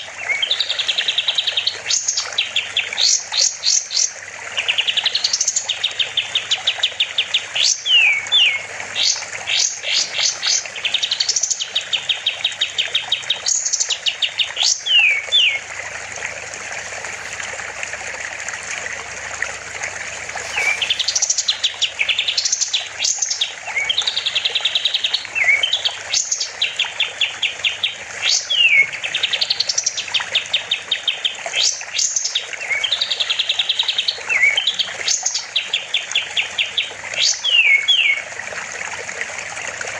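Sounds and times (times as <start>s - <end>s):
songbird singing trills and whistles: 0.0s - 15.6s, 20.4s - 38.2s
steady hiss: 19.1s - 21.5s.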